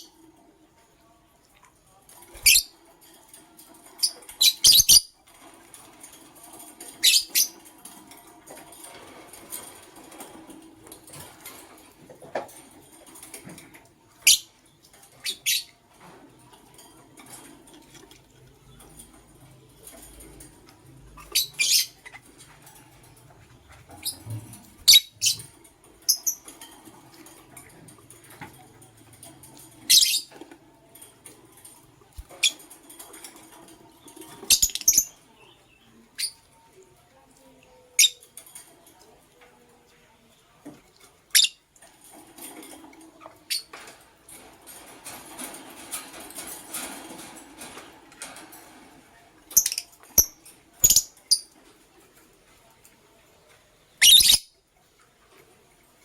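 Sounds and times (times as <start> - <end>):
lovebirds shrill chirps: 4.4 - 5.1, 54.0 - 54.5.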